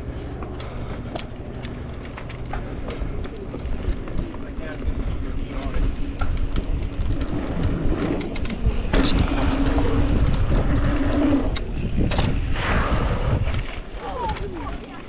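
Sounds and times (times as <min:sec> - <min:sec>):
bike rattling over rough ground: 0:00.0 - 0:15.0
bike tyre noise: 0:00.0 - 0:15.0
wind on microphone: 0:03.5 - 0:14.8.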